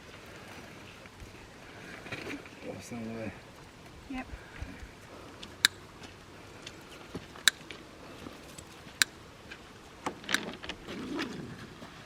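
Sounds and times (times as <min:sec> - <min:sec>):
stones clacking together: 0:08.5 - 0:12.0.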